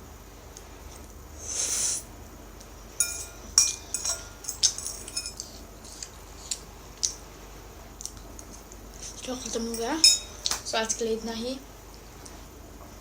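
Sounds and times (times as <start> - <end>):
short hissing rush: 1.4 - 2.1
utensils clinking against bowl: 3.0 - 5.6, 9.5 - 11.0.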